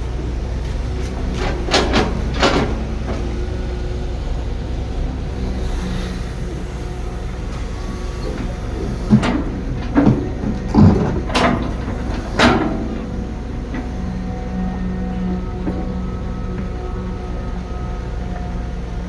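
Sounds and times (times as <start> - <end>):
diesel engine running: 0.0 - 19.0
metal clanks: 1.0 - 3.6, 8.2 - 16.7.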